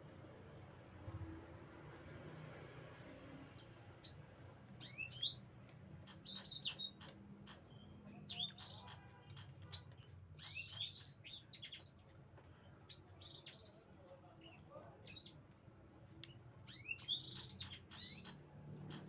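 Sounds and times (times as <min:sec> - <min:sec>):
bird chirping: 0:00.7 - 0:01.4, 0:03.0 - 0:19.0
faint clicks: 0:15.5 - 0:16.4.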